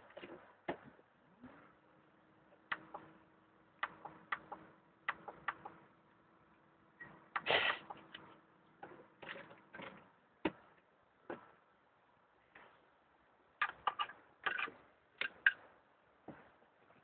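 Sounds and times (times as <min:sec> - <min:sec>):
hard objects clicking and knocking: 0:13.6 - 0:15.7.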